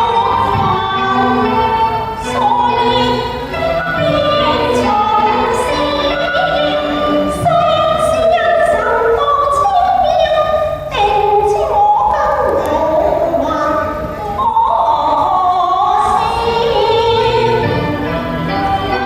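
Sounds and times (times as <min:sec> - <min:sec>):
musical accompaniment: 0:00.0 - 0:19.0
operatic singing: 0:00.0 - 0:19.0.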